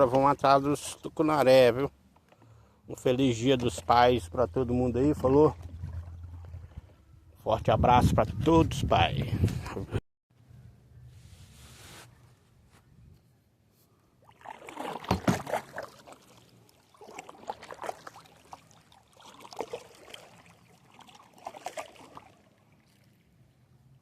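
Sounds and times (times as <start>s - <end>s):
paddle splashing in water: 5.2s - 7.0s, 14.2s - 23.5s.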